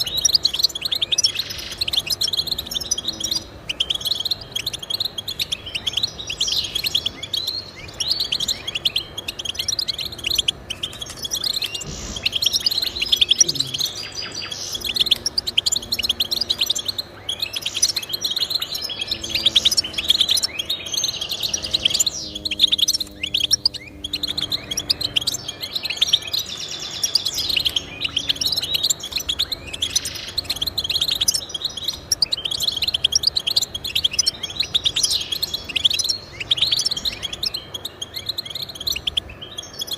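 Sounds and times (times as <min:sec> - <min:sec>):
bird twittering chirps and trills: 0:00.0 - 0:39.9.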